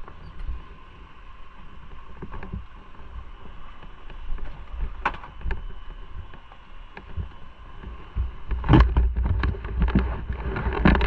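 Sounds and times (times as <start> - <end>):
wind buffeting microphone: 1.9 - 11.0.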